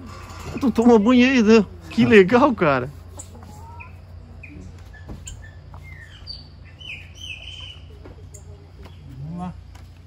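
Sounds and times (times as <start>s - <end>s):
birds chirping: 3.0s - 10.0s.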